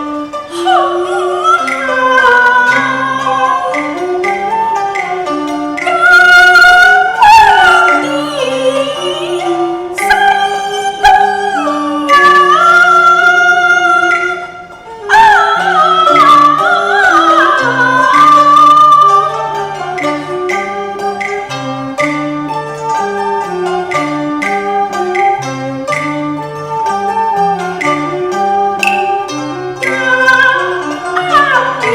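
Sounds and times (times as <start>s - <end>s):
live instrumental accompaniment: 0.0s - 31.9s
opera singing with sliding notes: 0.5s - 5.0s, 5.8s - 20.6s, 29.8s - 31.9s.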